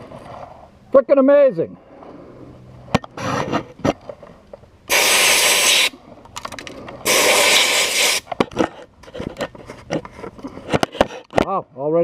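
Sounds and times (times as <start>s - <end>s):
scraping sounds: 1.9s - 4.6s, 5.9s - 11.4s
sand blast gun hissing: 4.9s - 6.0s, 7.0s - 8.3s.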